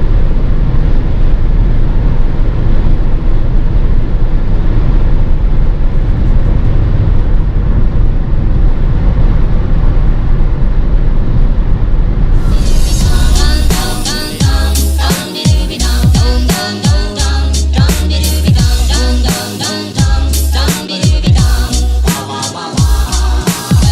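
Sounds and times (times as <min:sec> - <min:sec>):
car road wind and engine rumble: 0:00.0 - 0:14.7.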